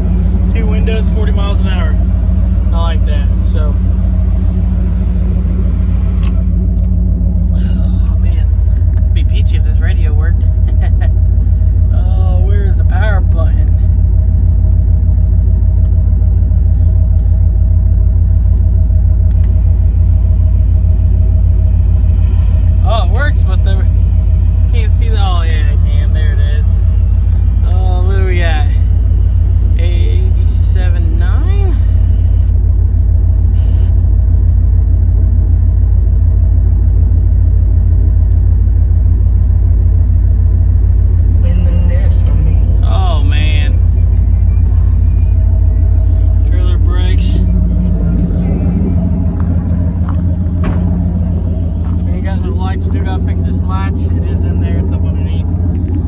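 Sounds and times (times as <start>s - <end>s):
truck engine rumbling: 0.0s - 56.0s
faint clicks: 18.5s - 19.6s.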